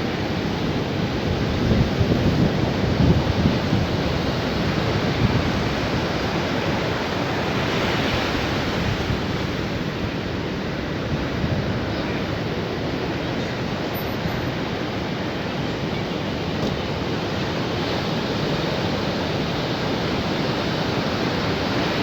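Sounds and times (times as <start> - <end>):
sea waves washing onto beach: 0.0 - 22.0.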